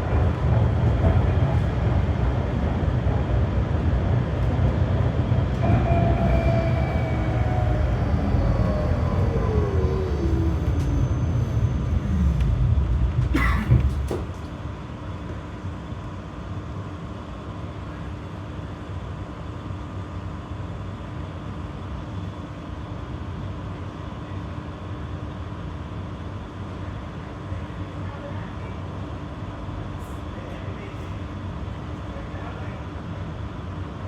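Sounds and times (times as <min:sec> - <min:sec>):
tram clunks: 0:00.0 - 0:15.5
tram running rumble: 0:00.0 - 0:18.8
electrical hum: 0:05.6 - 0:14.4.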